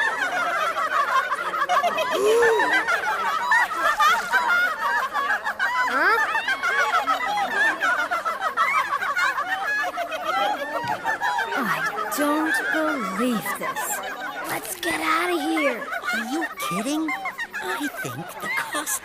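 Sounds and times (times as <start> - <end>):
cartoon chickens clucking: 11.6 - 19.0.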